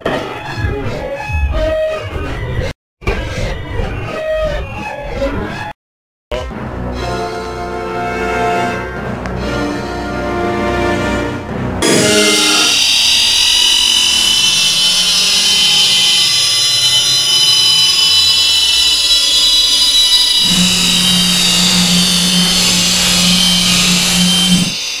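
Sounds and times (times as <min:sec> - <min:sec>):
distorted electronic screeching: 0:11.8 - 0:25.0.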